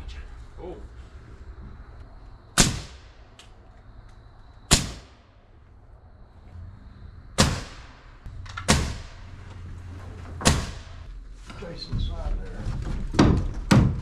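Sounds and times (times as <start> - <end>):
nail gun firing into timber: 2.6 - 3.0, 4.7 - 5.1, 7.4 - 7.9, 8.5 - 9.2, 10.4 - 11.0.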